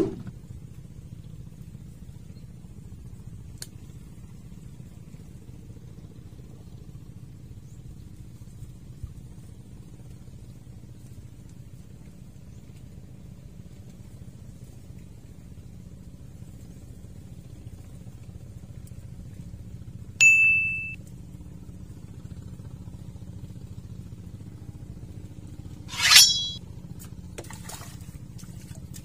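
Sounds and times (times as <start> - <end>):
bell-like ding: 20.2 - 21.0, 25.9 - 26.6.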